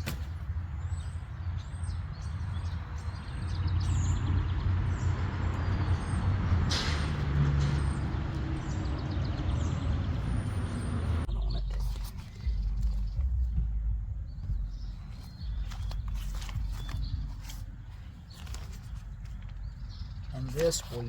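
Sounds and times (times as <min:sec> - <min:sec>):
small birds chirping: 0:00.0 - 0:21.0
steady low rumble: 0:10.1 - 0:20.5.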